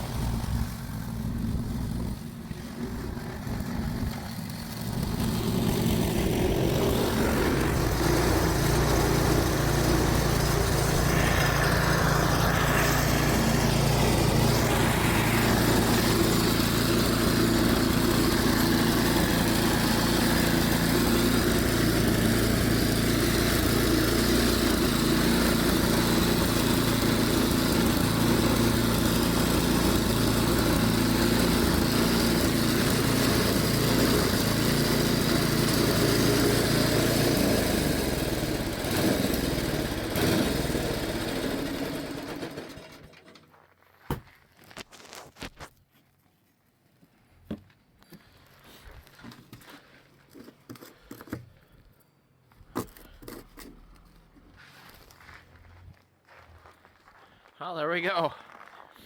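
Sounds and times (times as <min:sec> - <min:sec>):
snowblower engine running: 0:00.0 - 0:43.5.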